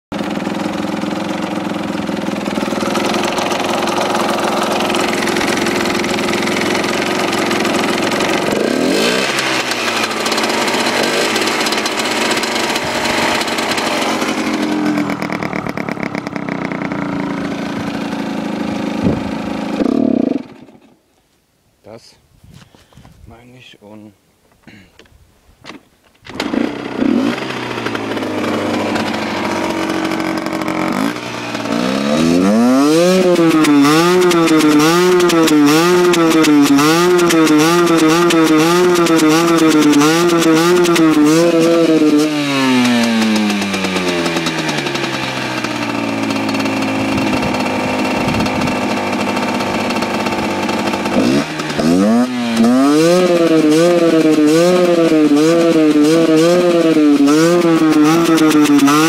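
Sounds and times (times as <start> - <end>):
two-stroke engine revving and hunting: 0.1 - 21.0, 25.7 - 59.0.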